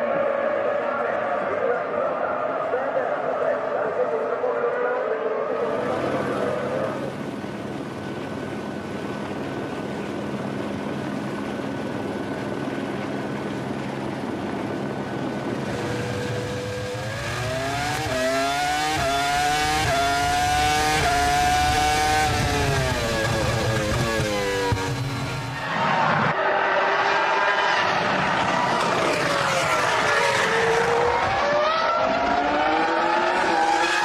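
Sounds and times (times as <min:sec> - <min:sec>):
racing car engine upshifting: 0:15.5 - 0:34.0.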